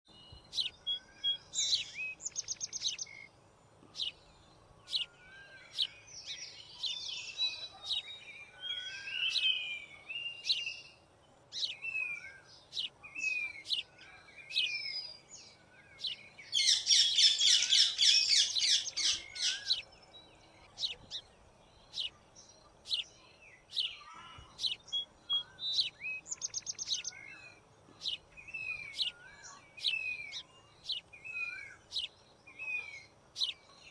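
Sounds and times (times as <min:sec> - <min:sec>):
small birds calling: 0:00.1 - 0:33.9.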